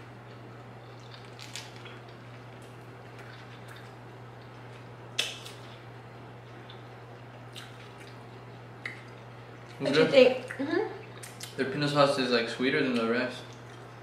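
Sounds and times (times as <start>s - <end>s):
steady low hum: 0.0s - 14.0s
wet chewing and lip smacks: 1.0s - 4.6s, 7.5s - 9.8s, 10.4s - 11.6s.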